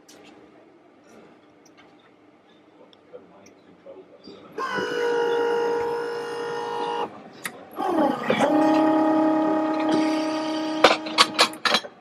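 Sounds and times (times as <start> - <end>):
small machine motor whining: 4.6 - 7.2, 7.8 - 11.4.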